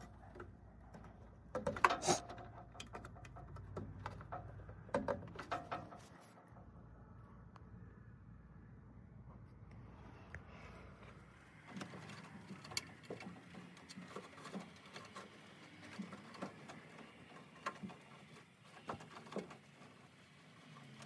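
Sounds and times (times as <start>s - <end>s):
faint low hum: 6.3s - 13.2s.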